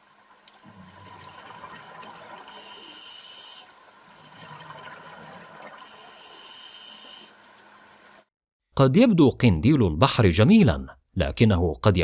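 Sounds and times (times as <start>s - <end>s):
hiss: 2.5s - 3.7s.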